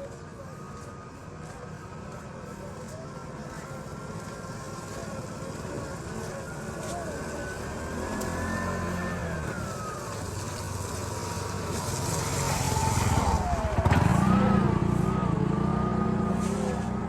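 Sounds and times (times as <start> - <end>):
engine running steadily: 0.0 - 17.0
vehicle passing by: 4.8 - 17.0.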